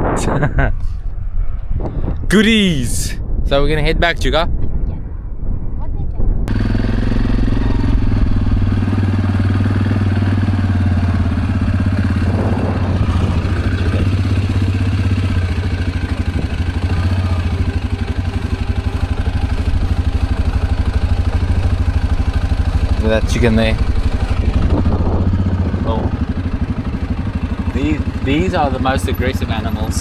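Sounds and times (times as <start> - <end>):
vehicle engine running: 6.5 - 30.0.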